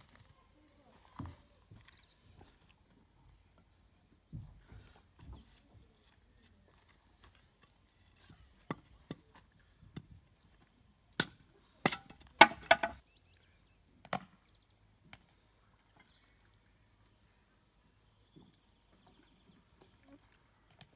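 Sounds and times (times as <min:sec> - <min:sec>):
wooden sticks knocking: 0:11.9 - 0:13.0.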